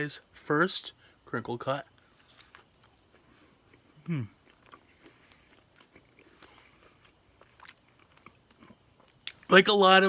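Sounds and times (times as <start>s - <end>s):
person chewing crunchy fries: 1.8s - 9.6s.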